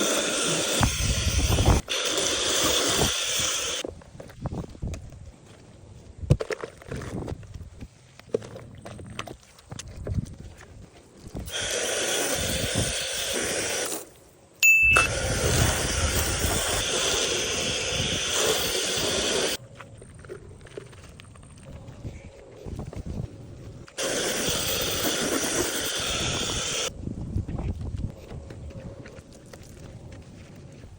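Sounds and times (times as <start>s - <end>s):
water spraying from nozzle: 11.5s - 14.0s, 15.1s - 19.6s, 24.0s - 26.9s.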